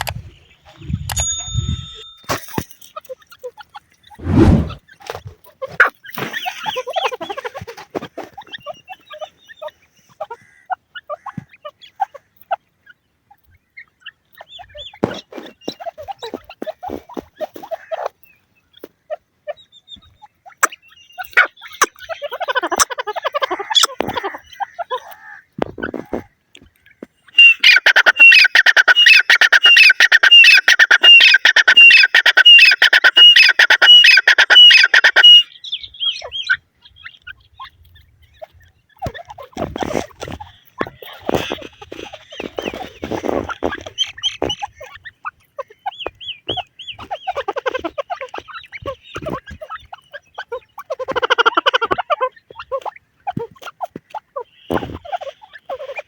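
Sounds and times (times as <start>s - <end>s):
francolin calling: 27.3s - 37.7s.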